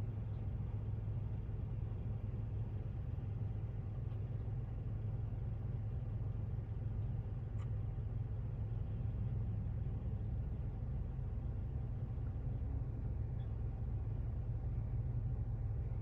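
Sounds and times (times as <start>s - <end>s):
car engine idling: 0.0s - 16.0s
faint click: 7.0s - 7.9s.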